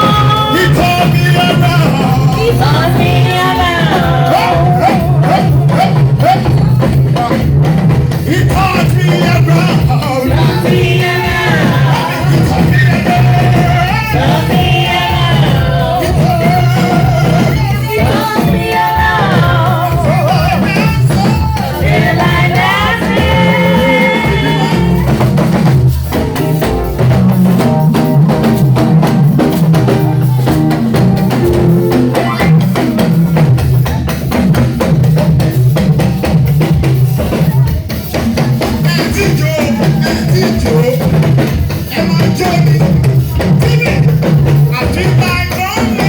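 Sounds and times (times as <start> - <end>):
person singing: 0.0 - 7.5, 8.3 - 25.2
band with drum kit: 0.0 - 46.0.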